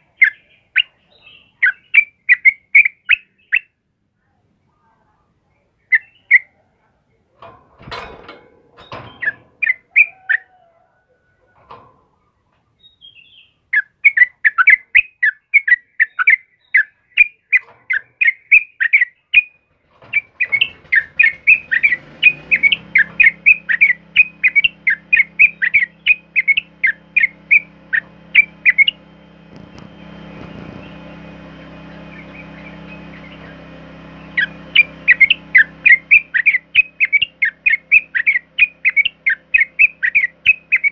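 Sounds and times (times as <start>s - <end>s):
bird chirping: 0.0s - 3.8s, 5.4s - 7.3s, 8.8s - 11.4s, 12.1s - 40.9s
low steady hum: 19.6s - 40.9s.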